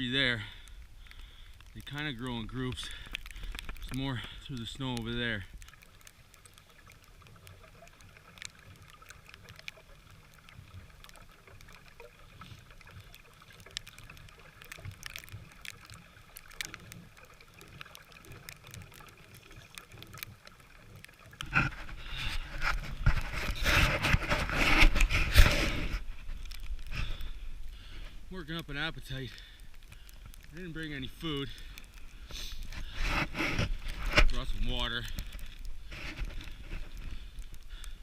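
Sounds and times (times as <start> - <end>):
wind rumbling on microphone: 21.4 - 28.3, 32.5 - 38.0.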